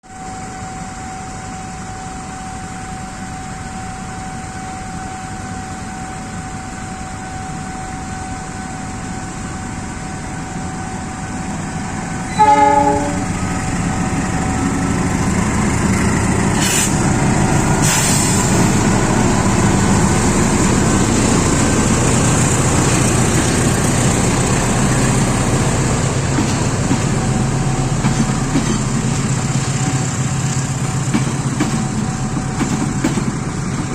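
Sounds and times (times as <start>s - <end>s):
locomotive engine rumble: 8.6s - 33.9s
train horn blast: 12.3s - 13.4s
brief hisses: 16.6s - 17.0s, 17.8s - 18.7s.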